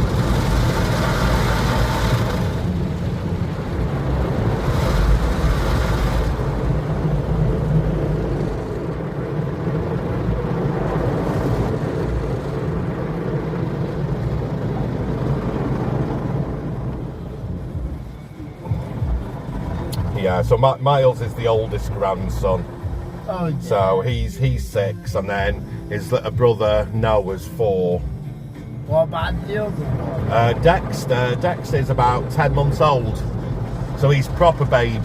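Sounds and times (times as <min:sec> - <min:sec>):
car wash water and machinery rumble: 0:00.0 - 0:35.0.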